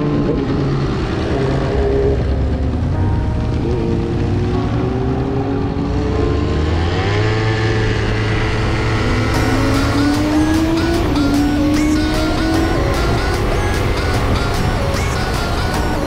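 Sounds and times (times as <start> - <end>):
motorcycle engine accelerating: 0.0 - 16.0
music with a beat: 9.3 - 16.0.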